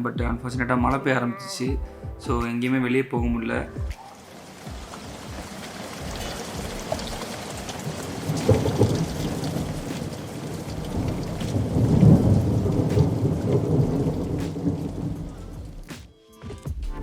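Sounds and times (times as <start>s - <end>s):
rain pouring: 4.0s - 15.9s
thunder rolling: 4.4s - 15.9s.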